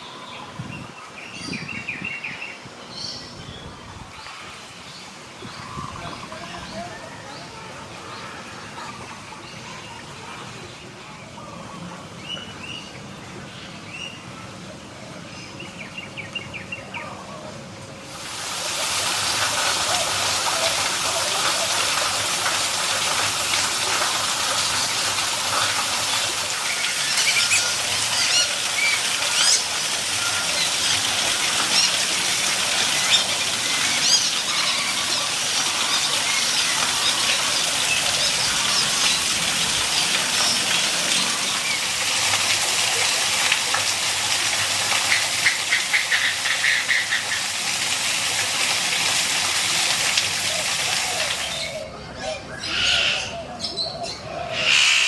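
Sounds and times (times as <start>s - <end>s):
rushing water: 0.0s - 10.9s, 18.0s - 52.0s
birds chirping and calling: 19.4s - 42.0s, 45.0s - 47.5s, 50.2s - 55.0s.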